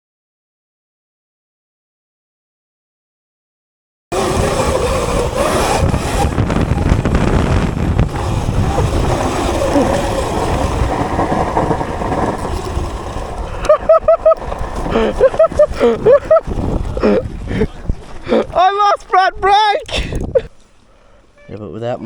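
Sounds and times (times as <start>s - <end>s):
electric motor whine: 4.1s - 17.2s
wind buffeting microphone: 4.1s - 20.6s
rider shouting: 17.6s - 19.9s.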